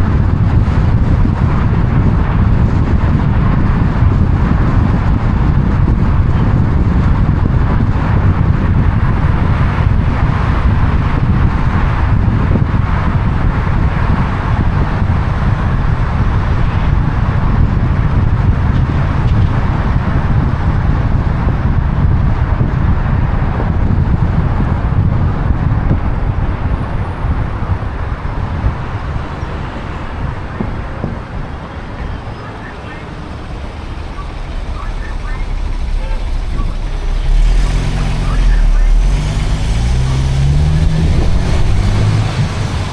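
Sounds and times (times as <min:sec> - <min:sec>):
car road noise rumble: 0:00.0 - 0:42.9
road hiss: 0:08.4 - 0:15.0, 0:26.0 - 0:42.9.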